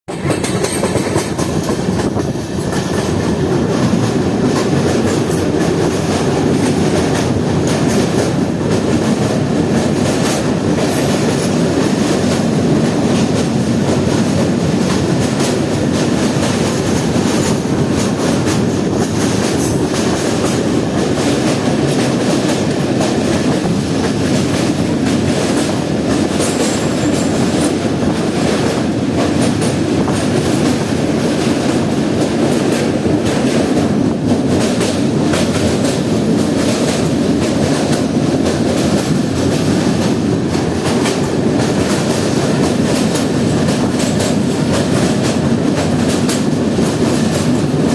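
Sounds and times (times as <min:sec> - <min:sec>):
wheels clacking over rail joints: 0:00.1 - 0:47.9.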